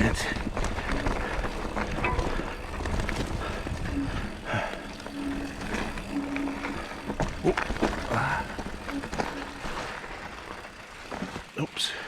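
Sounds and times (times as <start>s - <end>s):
mountain bike rumble and rattle: 0.0s - 12.0s.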